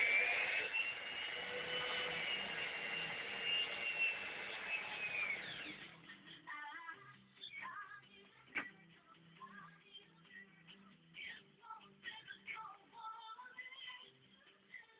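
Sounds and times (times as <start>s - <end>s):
electric drill whining: 0.0s - 6.0s.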